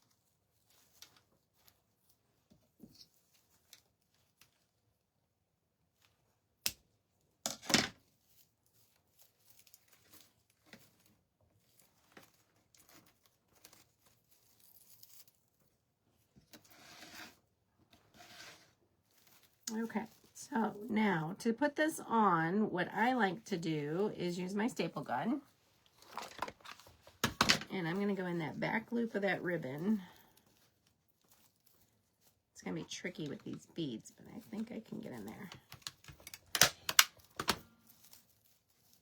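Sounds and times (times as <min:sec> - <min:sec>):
ribbon and greenery rustling: 0:08.0 - 0:16.8, 0:18.2 - 0:36.6, 0:37.2 - 0:39.0.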